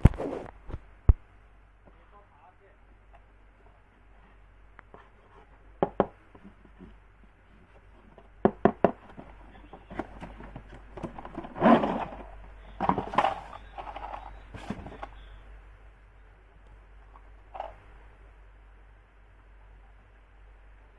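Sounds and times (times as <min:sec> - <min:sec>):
plastic toys clicking and knocking: 0:08.4 - 0:15.2.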